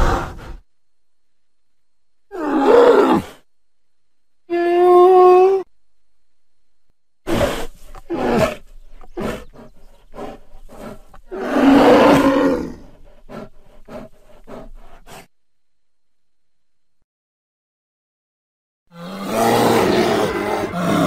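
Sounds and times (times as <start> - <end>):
bear growling and roaring: 2.3 - 3.4, 7.3 - 15.3, 18.9 - 21.0.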